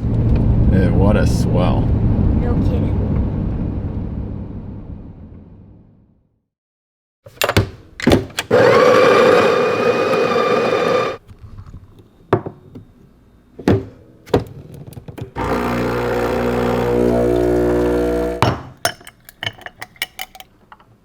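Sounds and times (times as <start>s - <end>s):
motor whirring: 8.4s - 11.2s, 15.4s - 18.4s
machine humming low drone: 15.4s - 18.4s.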